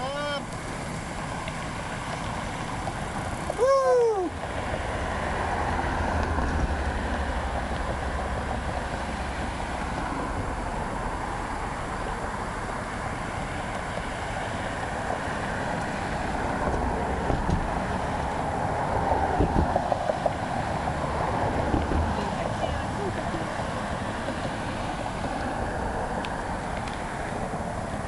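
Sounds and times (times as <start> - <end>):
tyres rumbling on path: 0.0 - 28.0
wind rush over microphone: 16.3 - 26.6.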